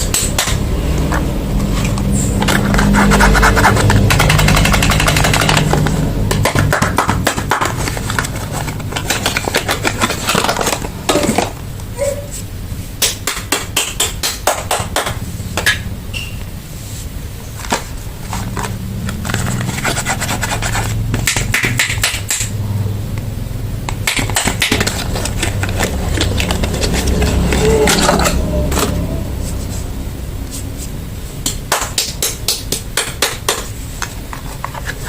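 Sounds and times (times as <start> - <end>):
low steady hum: 0.0 - 35.0
quick taps and clicks: 3.6 - 7.8
packaging crinkling and rustling: 7.3 - 11.6, 17.5 - 21.2, 24.2 - 28.4.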